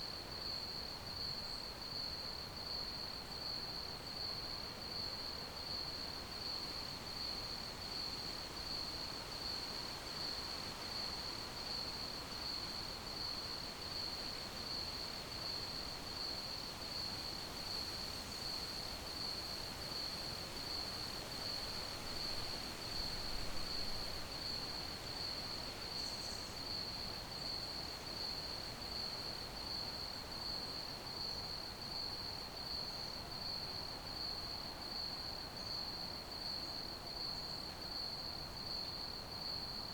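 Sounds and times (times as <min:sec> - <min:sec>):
crickets chirping: 0:16.9 - 0:39.9.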